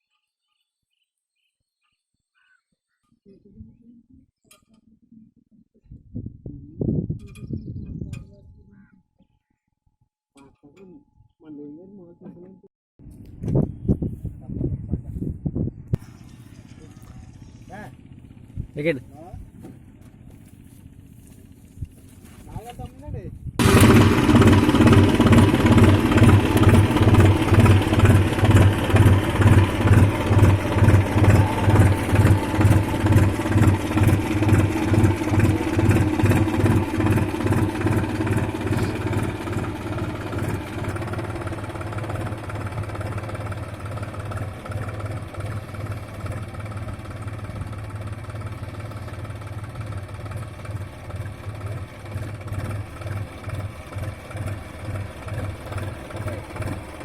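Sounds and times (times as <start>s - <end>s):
tractor diesel engine under load: 23.6s - 57.0s.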